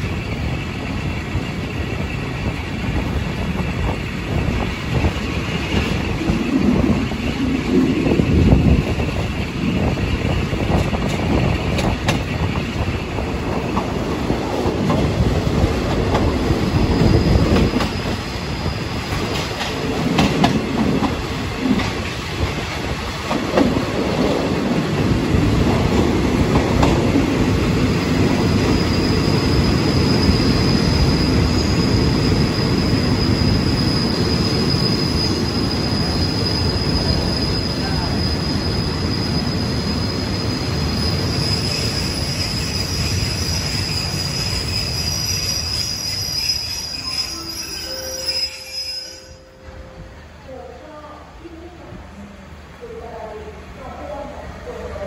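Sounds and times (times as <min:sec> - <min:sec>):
low train rumble: 0:00.0 - 0:55.0
train wheels clacking over rail joints: 0:10.3 - 0:12.7, 0:19.0 - 0:24.3, 0:25.8 - 0:27.3
wheel and brake squeal: 0:28.6 - 0:49.5.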